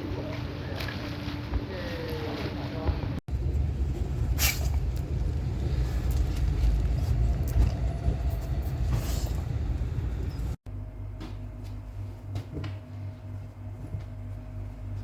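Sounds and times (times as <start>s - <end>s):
road vehicle rumbling: 1.8s - 10.6s.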